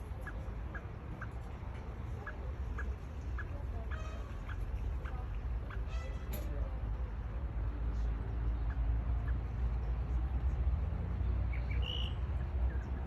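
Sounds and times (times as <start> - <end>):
faint bird chirps: 11.5 - 13.0.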